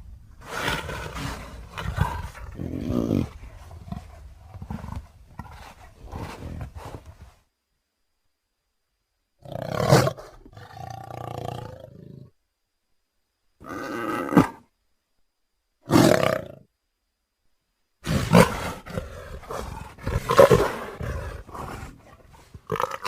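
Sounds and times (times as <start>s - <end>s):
leopard grunting and calling: 0.4s - 7.3s, 18.0s - 23.0s.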